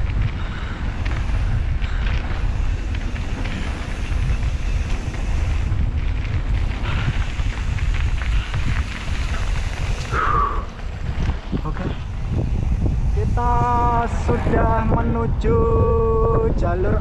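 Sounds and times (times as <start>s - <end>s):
faint ticks and rattles: 0.0s - 17.0s
wind buffeting microphone: 0.0s - 17.0s.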